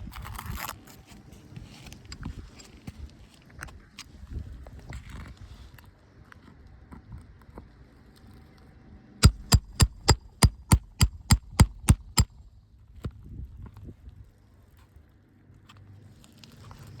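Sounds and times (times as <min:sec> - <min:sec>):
hammer strikes: 0:09.2 - 0:12.4.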